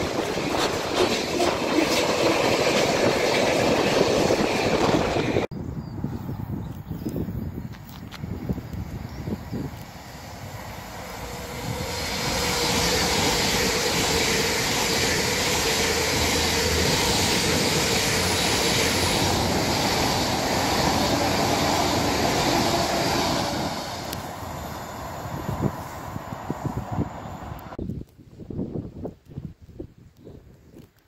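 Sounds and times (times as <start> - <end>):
train wheels rushing on rail: 0.0 - 5.5, 8.4 - 27.8.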